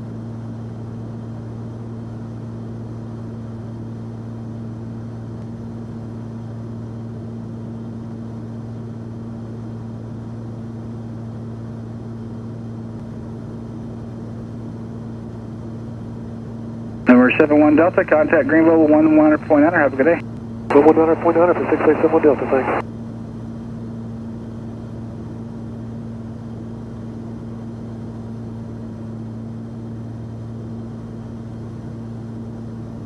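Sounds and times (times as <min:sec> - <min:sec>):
aircraft engines droning: 0:17.1 - 0:22.8.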